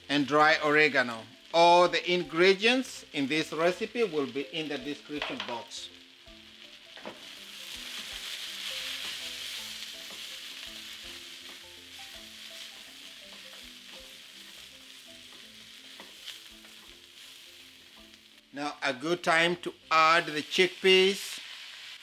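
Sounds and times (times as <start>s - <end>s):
vegetables sizzling in pan: 0.0s - 22.0s
spatula scraping and tapping pan: 8.0s - 17.0s.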